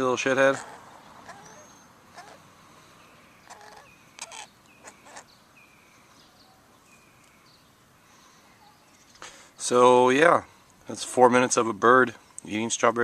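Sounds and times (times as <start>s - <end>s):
harsh bird calls: 0.0s - 9.5s
faint outdoor ambience: 0.0s - 13.0s
thin bird chirps: 3.0s - 9.2s.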